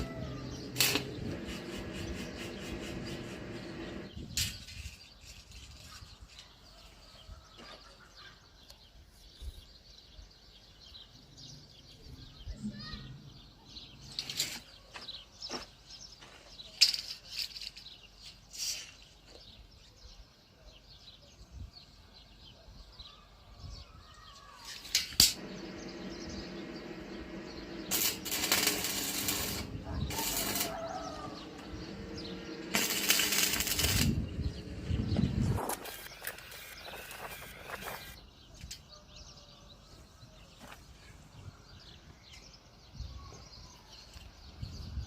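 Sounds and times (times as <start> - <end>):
power tool motor running: 0.0 - 4.1, 25.4 - 38.2
power tool grinding steel: 0.4 - 4.1, 25.3 - 38.2.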